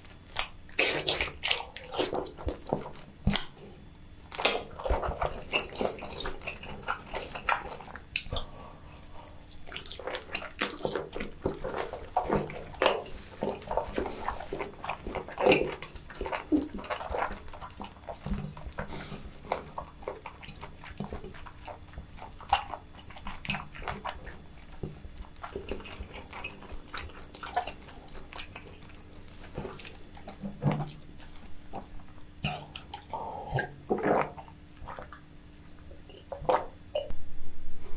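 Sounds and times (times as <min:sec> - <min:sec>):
person chewing food wetly: 0:00.0 - 0:37.2.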